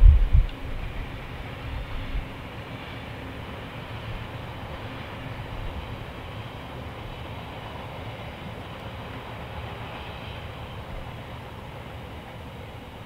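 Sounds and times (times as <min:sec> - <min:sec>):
distant freight train wheels on rail: 0:00.0 - 0:13.0.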